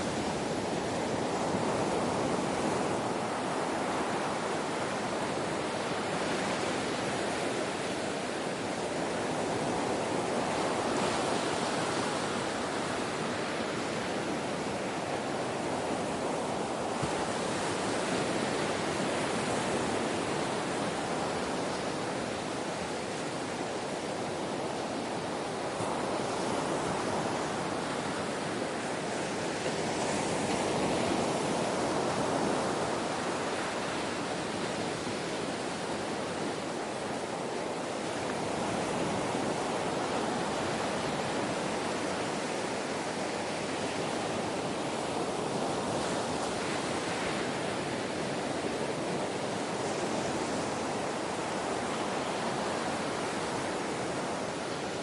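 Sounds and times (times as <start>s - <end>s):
ocean waves washing on shore: 0.0s - 55.0s.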